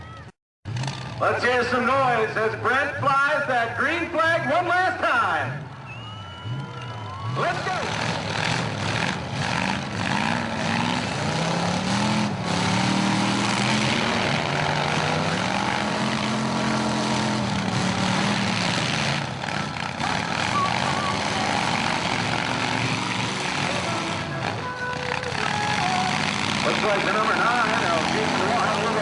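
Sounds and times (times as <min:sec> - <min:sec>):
car engines revving hard: 0:00.7 - 0:04.6, 0:05.2 - 0:29.0.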